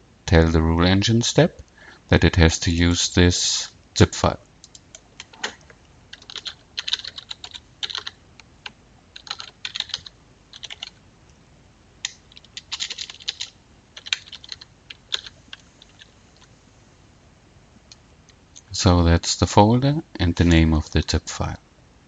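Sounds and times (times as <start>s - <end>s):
typing on computer keyboard: 4.6s - 11.0s, 12.0s - 16.1s.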